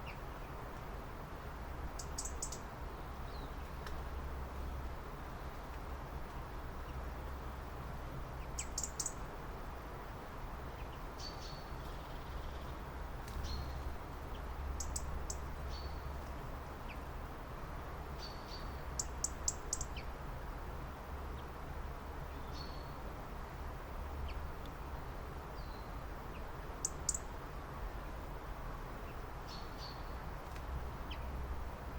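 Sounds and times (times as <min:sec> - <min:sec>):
small birds chirping: 0:01.8 - 0:07.4, 0:08.3 - 0:09.3, 0:10.6 - 0:17.3, 0:18.1 - 0:20.2, 0:22.2 - 0:23.1, 0:24.0 - 0:28.3, 0:28.9 - 0:31.5.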